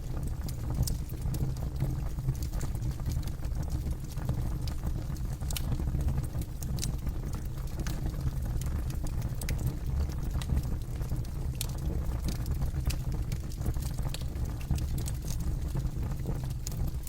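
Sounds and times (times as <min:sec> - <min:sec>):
campfire crackling and popping: 0:04.6 - 0:16.9.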